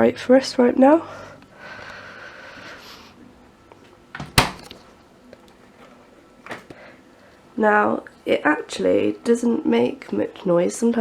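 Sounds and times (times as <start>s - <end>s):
fridge door clicks: 4.2s - 4.8s
fridge door thud: 4.2s - 4.8s.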